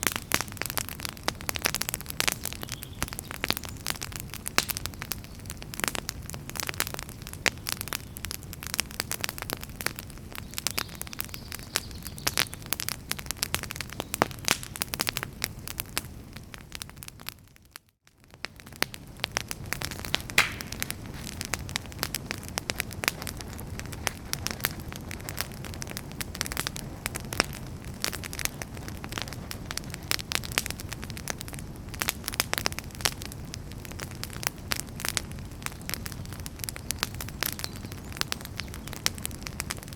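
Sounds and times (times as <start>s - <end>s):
fire crackling and popping: 0.0s - 39.9s
low rush of flame: 18.5s - 37.5s.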